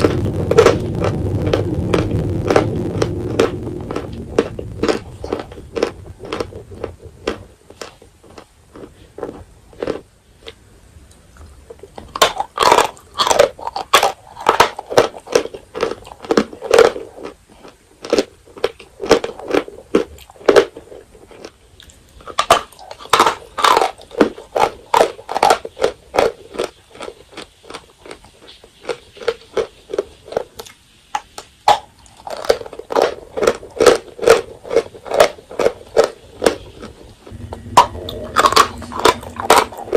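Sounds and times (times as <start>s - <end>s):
crunchy chalk chewing: 0.0s - 39.9s.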